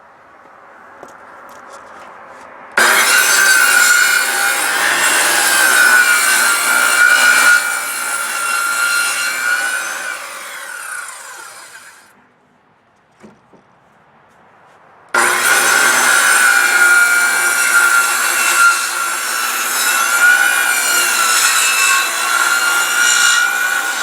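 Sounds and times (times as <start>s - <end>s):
circular saw cutting board: 2.8s - 12.1s, 15.2s - 24.0s.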